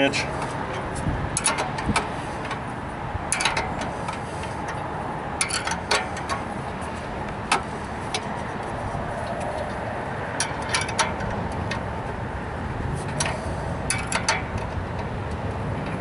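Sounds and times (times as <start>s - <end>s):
steady background hum: 0.0s - 16.0s
wrench clicking on metal: 1.3s - 2.6s, 3.3s - 4.8s, 5.4s - 6.5s, 13.0s - 16.0s.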